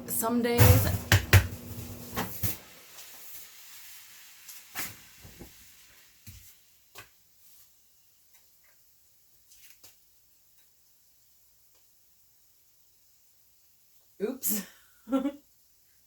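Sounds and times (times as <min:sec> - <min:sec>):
kitchen knocks and clicks: 0:00.6 - 0:02.4
faint hiss: 0:01.8 - 0:16.0.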